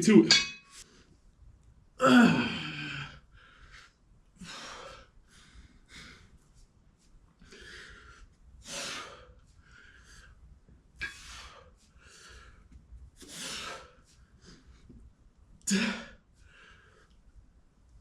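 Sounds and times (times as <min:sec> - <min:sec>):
man breathing hard with effort: 0:02.3 - 0:06.6, 0:07.4 - 0:10.4, 0:11.0 - 0:15.0, 0:15.7 - 0:17.2.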